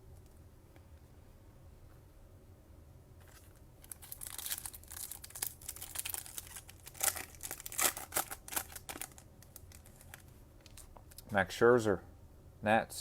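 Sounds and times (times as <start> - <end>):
foil wrapper tearing and crinkling: 3.3 - 10.9.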